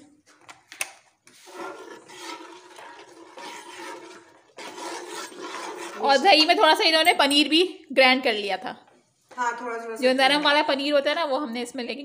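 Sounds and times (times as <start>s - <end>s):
curry sizzling and bubbling in pot: 1.3s - 6.6s
steel ladle stirring: 1.3s - 7.6s.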